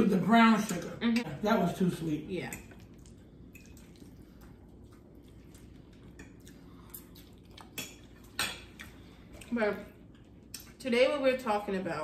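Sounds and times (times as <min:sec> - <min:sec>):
wet chewing and mouth clicks: 0:02.6 - 0:10.8.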